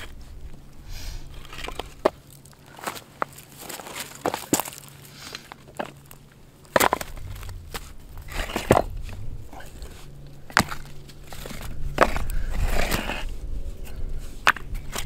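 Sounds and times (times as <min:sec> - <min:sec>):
dry wood snapping: 0:05.5 - 0:09.0.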